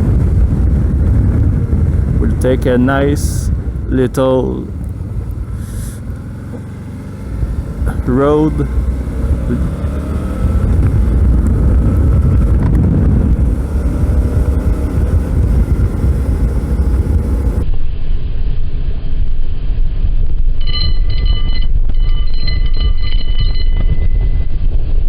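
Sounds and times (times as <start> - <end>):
motorcycle engine running: 0.0 - 17.6
wind rushing over microphone: 0.0 - 25.0
thin high steady tones: 20.6 - 24.4.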